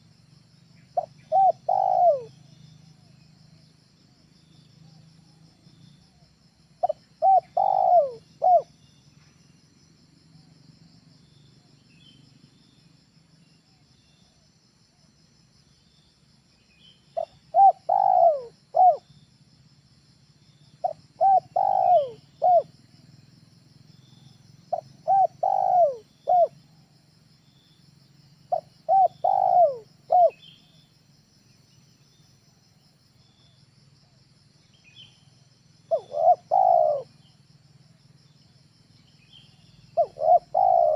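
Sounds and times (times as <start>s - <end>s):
dove cooing: 1.0s - 2.4s, 6.8s - 8.7s, 17.2s - 19.1s, 20.8s - 22.8s, 24.7s - 26.6s, 28.5s - 30.5s, 35.9s - 37.2s, 39.8s - 40.9s.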